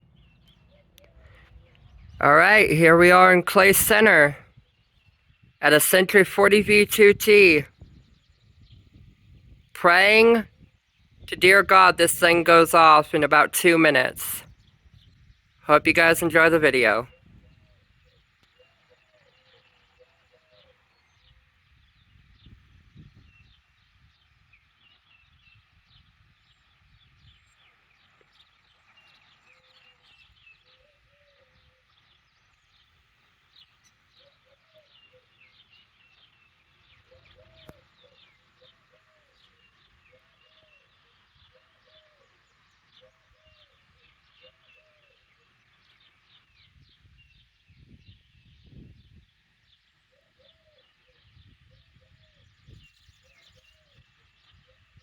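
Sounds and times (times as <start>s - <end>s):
low cooing bird calls: 37.0s - 40.8s, 50.1s - 54.0s.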